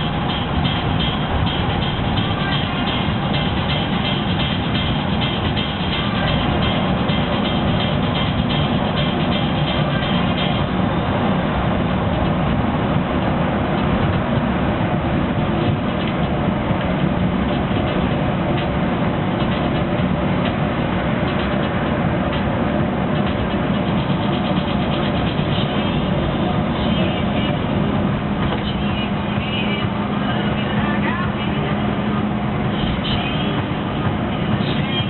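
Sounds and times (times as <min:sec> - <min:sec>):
bus engine running: 0:00.0 - 0:35.0
tyre and road noise: 0:00.0 - 0:35.0.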